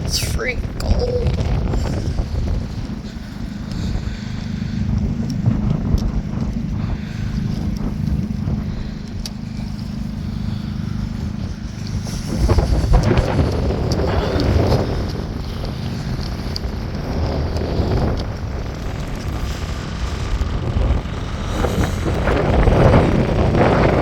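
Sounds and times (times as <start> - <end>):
wind buffeting microphone: 0.0 - 24.0
sharp ticks: 5.0 - 9.9.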